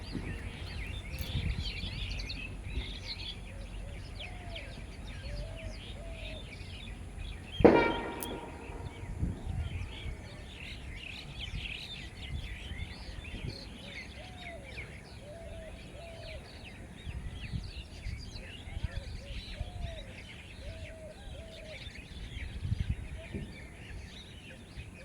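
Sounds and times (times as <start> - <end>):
lower curved bird call: 0.0 - 12.1
small birds chirping: 0.0 - 25.0
loud knock with ringing: 7.6 - 9.2.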